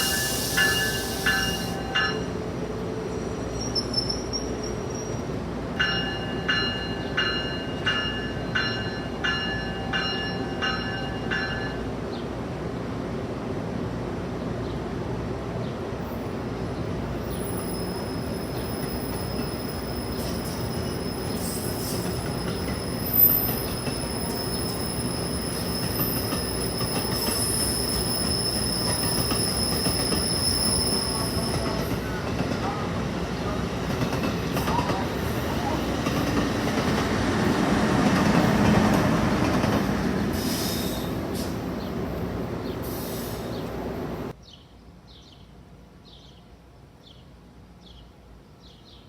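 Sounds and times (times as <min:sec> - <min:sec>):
train rumbling: 0:00.0 - 0:44.4
bell ringing: 0:00.1 - 0:02.4
high squeal: 0:03.1 - 0:05.3, 0:17.4 - 0:31.8.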